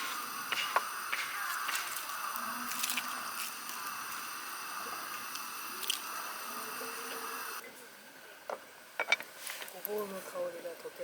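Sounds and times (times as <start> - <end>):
broth simmering and bubbling: 0.0 - 7.6
steady hiss: 0.0 - 10.0.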